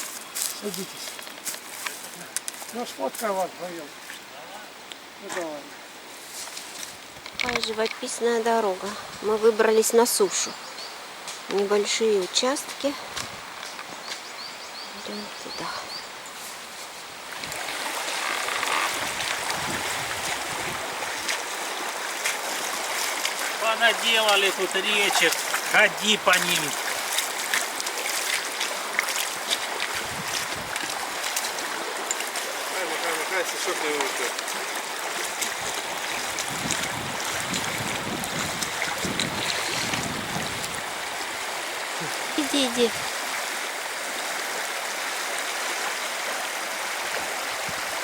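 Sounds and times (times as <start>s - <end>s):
mountain stream rushing: 0.0s - 14.6s, 15.2s - 48.0s
wind rumbling on microphone: 8.8s - 9.6s, 13.0s - 14.0s, 17.2s - 21.4s, 29.7s - 31.2s, 35.4s - 41.4s, 47.1s - 48.0s.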